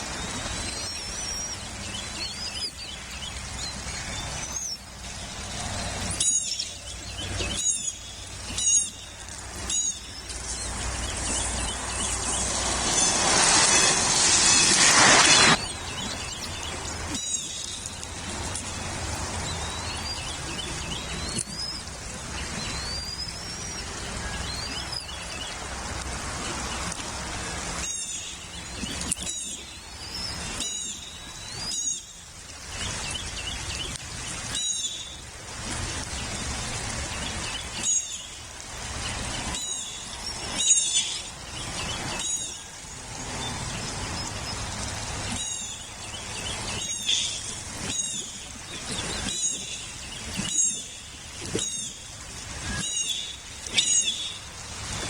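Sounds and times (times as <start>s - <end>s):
background hiss: 4.8s - 19.4s
eagle chirping calls: 5.5s - 18.6s, 45.3s - 52.0s.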